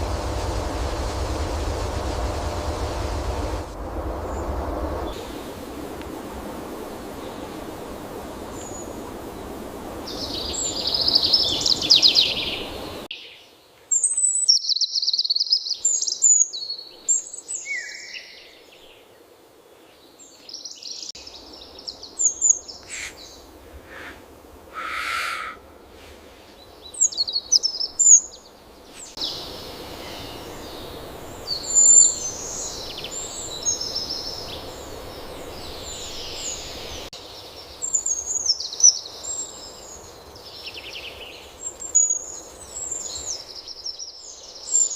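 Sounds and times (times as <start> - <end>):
steady background hiss: 0.0 - 44.9
birds chirping and calling: 22.4 - 24.2, 24.8 - 25.6.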